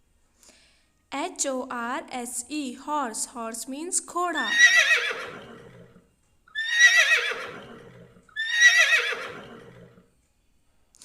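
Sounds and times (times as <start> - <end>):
horse whinnying: 4.4 - 10.0.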